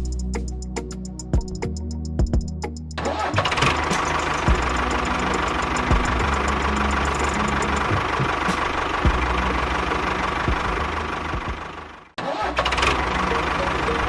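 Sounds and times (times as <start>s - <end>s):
engine idling with knocks: 3.4s - 12.1s.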